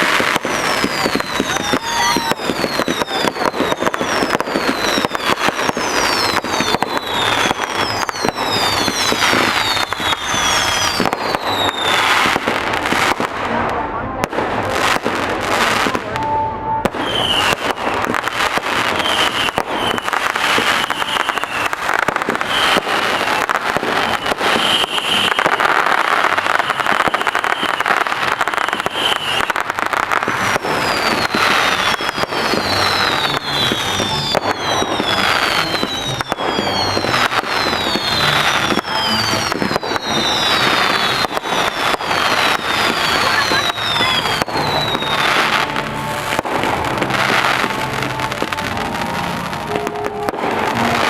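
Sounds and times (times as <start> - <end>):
fireworks bangs and crackling: 0.0 - 51.0
high held whistle: 0.6 - 12.2, 16.2 - 17.9, 18.8 - 29.6, 30.6 - 45.6.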